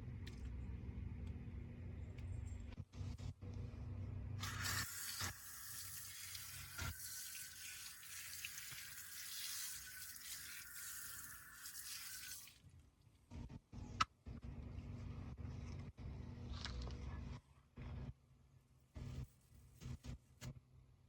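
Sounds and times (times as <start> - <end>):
tap running water into sink: 4.4 - 12.5.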